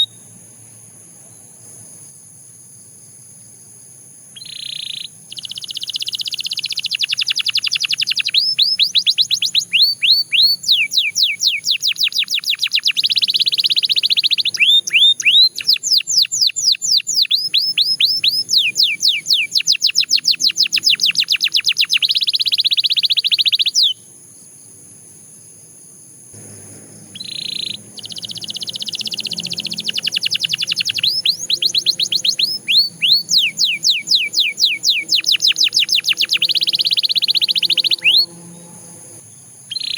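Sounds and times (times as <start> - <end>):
canary singing trills: 0.0 - 0.4, 4.3 - 24.0, 26.4 - 39.9.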